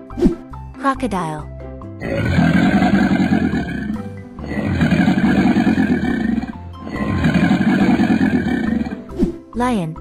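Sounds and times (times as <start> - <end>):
background music: 0.0 - 10.0
cartoon crocodile growling roar: 2.0 - 9.1.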